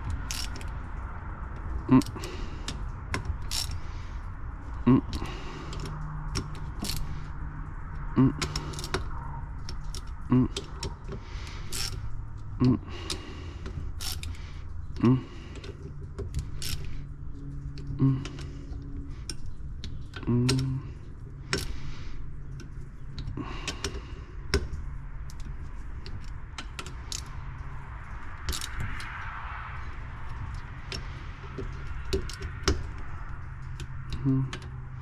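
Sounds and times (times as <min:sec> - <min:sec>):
wrench clinking on bolts: 0:00.0 - 0:00.7, 0:02.0 - 0:03.8, 0:08.4 - 0:12.0, 0:15.5 - 0:20.8
steady low hum: 0:00.0 - 0:35.0.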